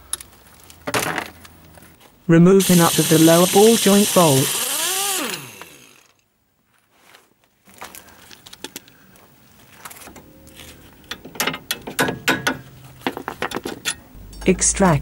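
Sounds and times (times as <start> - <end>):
ratchet wrench clicking: 2.6 - 6.1.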